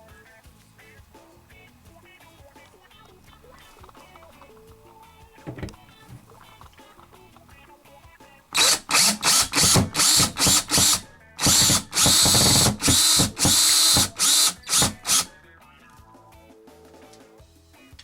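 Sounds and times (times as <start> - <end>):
cordless drill driving screws: 8.6 - 15.3.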